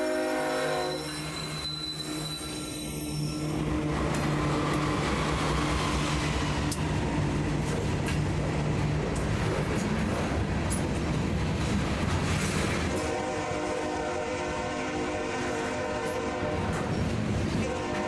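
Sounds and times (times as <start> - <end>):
train horn: 0.0 - 3.9, 12.9 - 18.0
freight train rolling past: 0.0 - 18.0.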